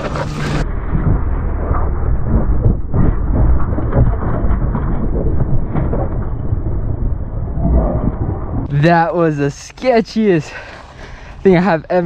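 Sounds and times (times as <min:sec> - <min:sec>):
bike knocks and rattles: 0:00.0 - 0:07.5
tyres rumbling over dirt and rocks: 0:00.0 - 0:11.7.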